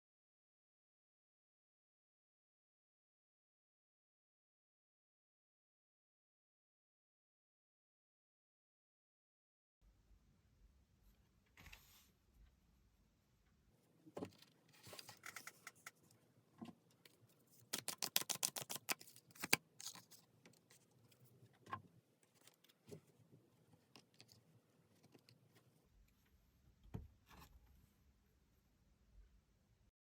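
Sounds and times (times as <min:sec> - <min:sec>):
cards tapping and rustling: 0:17.6 - 0:20.7
deck of cards shuffling: 0:17.6 - 0:20.8.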